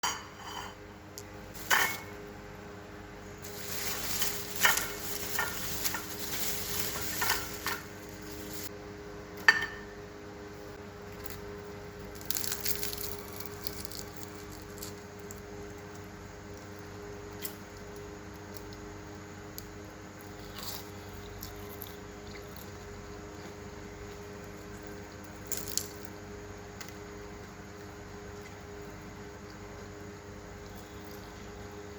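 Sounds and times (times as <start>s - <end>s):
steady low hum: 0.0s - 31.9s
crisp pastry crunching: 3.3s - 8.7s, 11.0s - 31.6s
food sizzling in hot oil: 3.4s - 8.7s.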